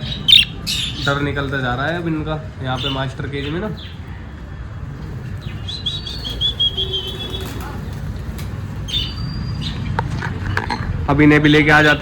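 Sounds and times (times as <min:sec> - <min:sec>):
budgies chirping: 0:00.0 - 0:04.2, 0:05.3 - 0:08.0, 0:08.8 - 0:10.2, 0:11.4 - 0:12.0.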